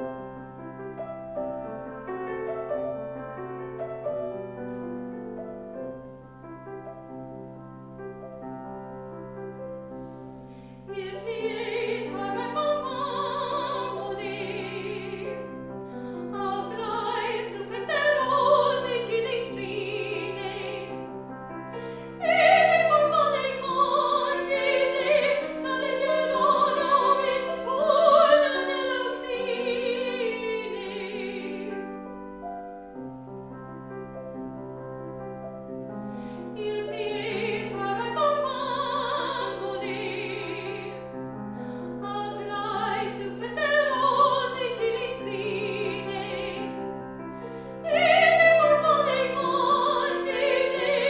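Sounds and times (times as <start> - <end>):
piano accompaniment: 0.0 - 51.0
operatic singing with vibrato: 10.8 - 21.1, 21.7 - 32.0, 36.2 - 51.0.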